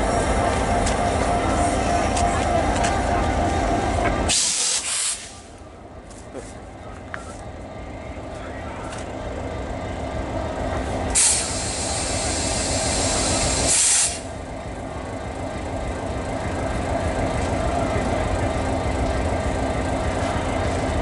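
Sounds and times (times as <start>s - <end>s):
diesel locomotive rumble: 0.0s - 21.0s
compressed air hiss: 4.3s - 5.4s, 11.2s - 14.3s.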